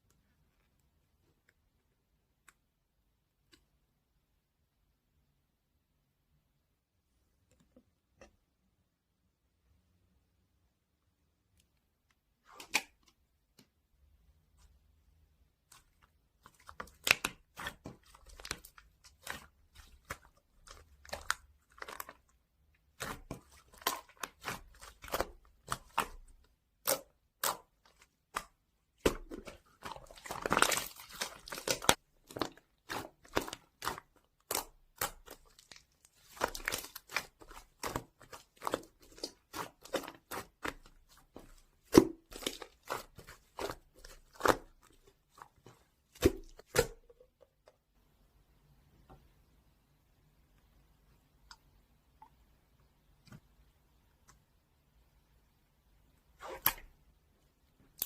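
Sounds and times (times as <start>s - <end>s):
crinkling handling noises: 27.8s - 47.7s.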